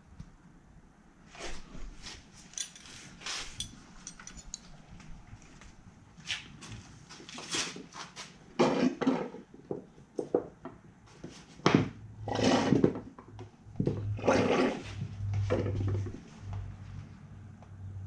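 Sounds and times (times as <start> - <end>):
low steady hum: 0.0 - 7.4
tools clanking and scraping: 2.0 - 4.8.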